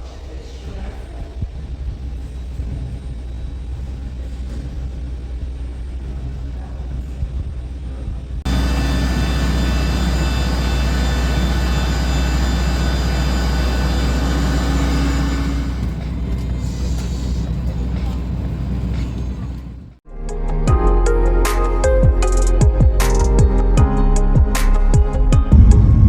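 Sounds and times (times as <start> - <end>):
high steady engine whine: 0.0 - 20.0, 25.5 - 26.0
jet engine rumble in cabin: 0.0 - 20.0, 25.5 - 26.0.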